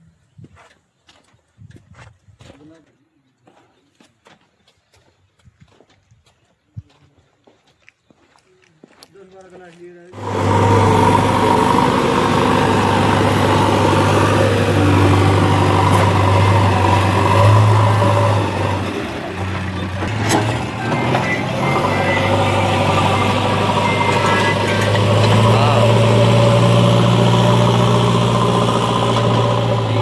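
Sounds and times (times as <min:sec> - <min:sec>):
diesel engine running: 0:10.2 - 0:30.0.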